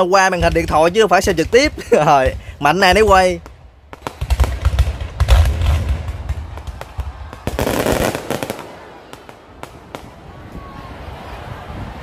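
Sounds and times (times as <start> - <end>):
fireworks bangs and cracks: 0.2 - 10.4
deep fireworks booms: 0.3 - 10.7
fireworks crackle: 2.9 - 10.4.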